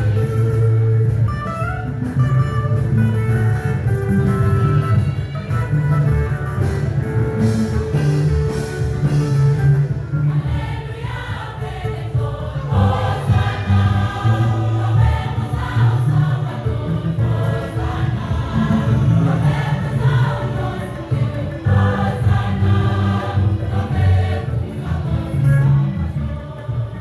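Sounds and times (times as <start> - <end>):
band with bass notes: 0.0 - 27.0
gospel choir singing: 7.4 - 27.0.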